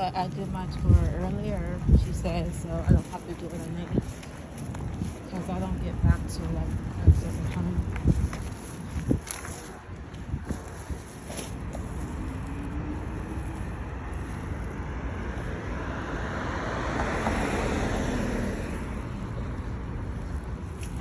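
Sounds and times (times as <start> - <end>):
car passing by: 12.1 - 20.1.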